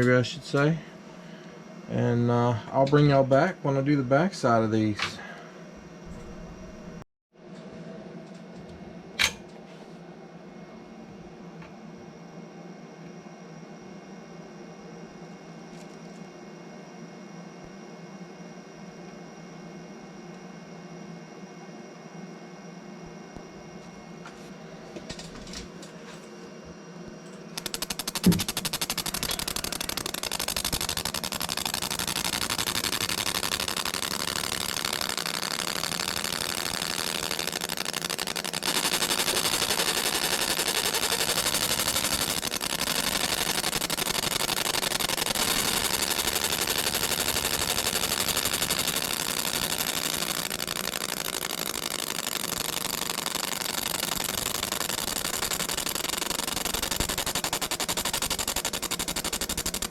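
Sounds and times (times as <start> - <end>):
machine rattling: 27.5 - 59.9.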